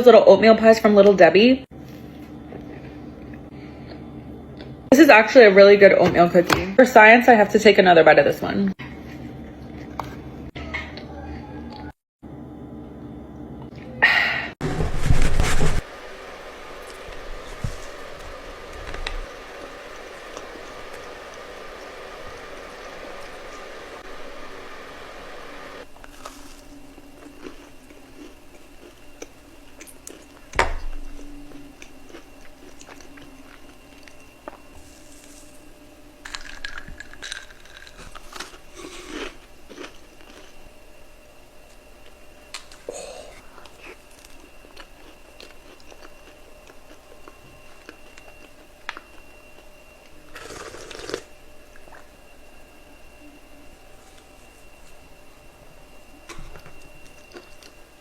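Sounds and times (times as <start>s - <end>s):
person chewing: 26.0s - 35.5s, 36.3s - 40.6s, 42.5s - 49.3s, 50.3s - 52.1s, 56.7s - 57.8s.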